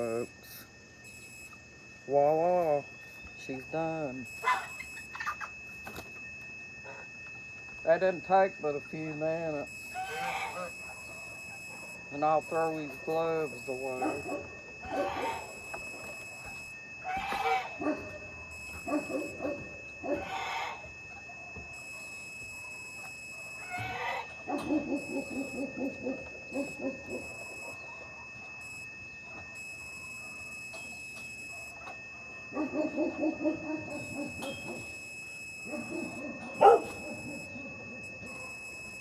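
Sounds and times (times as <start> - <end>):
steady thin high tone: 0.0 - 39.0
animal calling in rapid notes: 4.1 - 5.7, 9.6 - 21.3, 22.0 - 28.8, 31.4 - 39.0.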